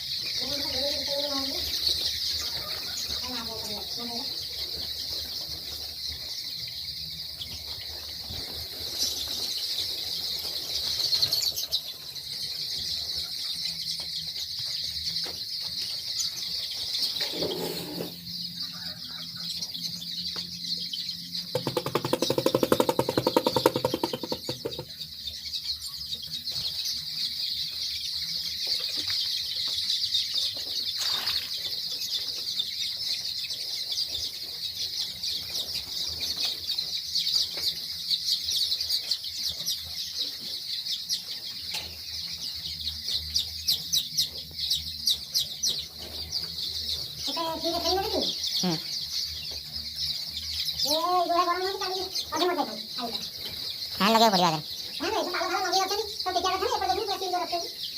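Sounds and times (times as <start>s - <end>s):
chicks cheeping: 0.0s - 57.9s
wing flapping: 21.6s - 24.8s.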